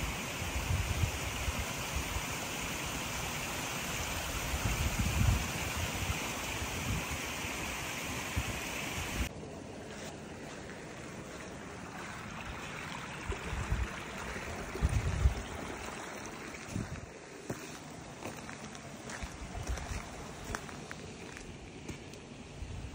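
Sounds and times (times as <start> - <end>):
creek water rushing: 0.0 - 22.6
wind thumping on microphone: 4.4 - 7.2, 13.3 - 15.7, 16.6 - 17.1, 19.1 - 20.7.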